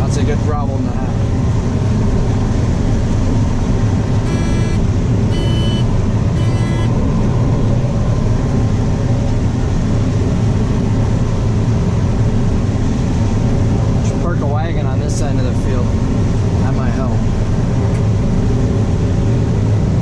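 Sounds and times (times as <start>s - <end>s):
combine harvester engine drone: 0.0s - 20.0s
short electronic beeps: 4.2s - 6.9s.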